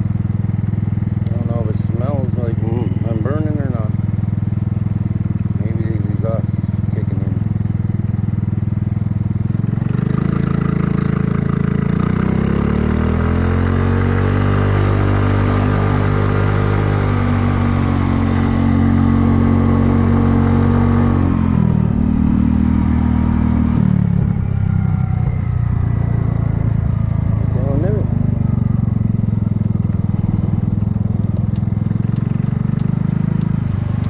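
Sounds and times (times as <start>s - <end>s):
scooter engine accelerating: 0.0s - 34.0s.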